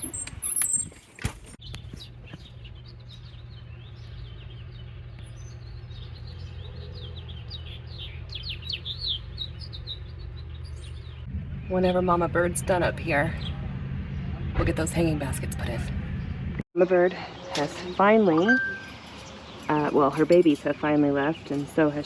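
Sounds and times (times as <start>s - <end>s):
small birds chirping: 0.0s - 16.4s
low background rumble: 1.7s - 16.6s.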